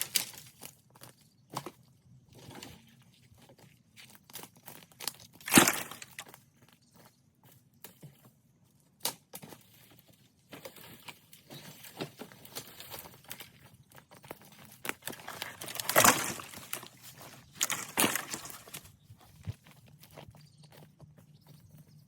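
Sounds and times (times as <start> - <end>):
dry sticks crackling: 0.0 - 1.0, 4.3 - 6.4, 10.5 - 20.2
loud crunching crashes: 5.4 - 6.2, 15.2 - 17.0, 17.6 - 18.8.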